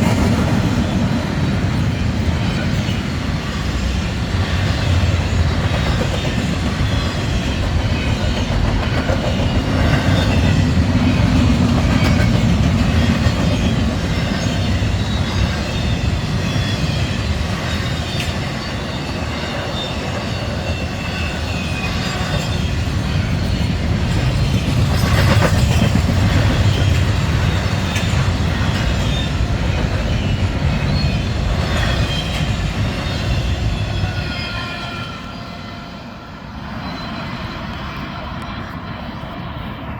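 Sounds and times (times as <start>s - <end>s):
freight train rumbling: 0.0s - 39.9s
wheels clicking over rail joints: 4.5s - 34.0s.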